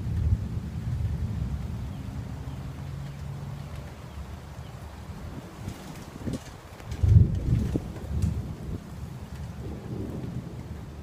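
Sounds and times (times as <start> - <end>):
rain falling: 0.0 - 11.0
thunder rumbling: 0.0 - 11.0.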